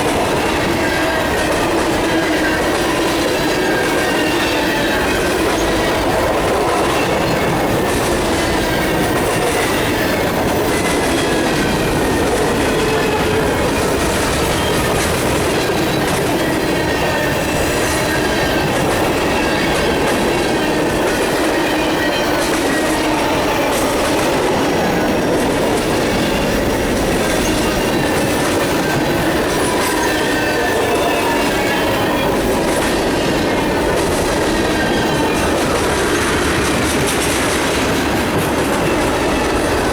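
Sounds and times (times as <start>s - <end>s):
clacks over rail joints: 0.0s - 39.9s
train wheels rumbling on rail: 0.0s - 39.9s
wheel squeal: 27.3s - 32.5s.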